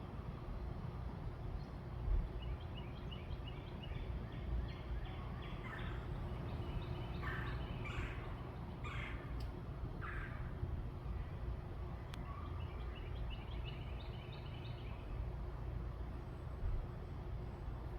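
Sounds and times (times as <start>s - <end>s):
birds chirping: 2.4s - 10.5s, 12.2s - 15.2s
harsh bird calls: 3.8s - 9.4s.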